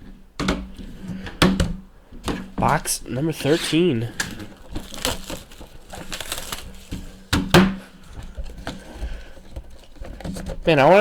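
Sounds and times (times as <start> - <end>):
cardboard scraping and crinkling: 2.2 - 11.0
cardboard box being forced open: 4.1 - 11.0.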